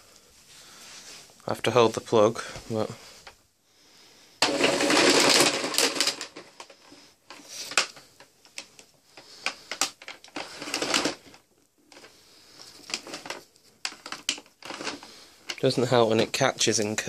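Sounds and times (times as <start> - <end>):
vacuum cable rewinding: 4.4 - 8.0, 9.2 - 11.4, 12.9 - 15.6
cable clicks and rattles: 4.4 - 16.0.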